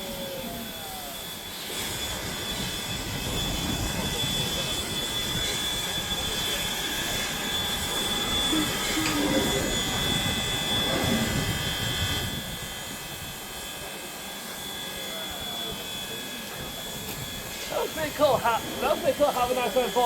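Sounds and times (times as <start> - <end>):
high whine: 2.0 - 13.4.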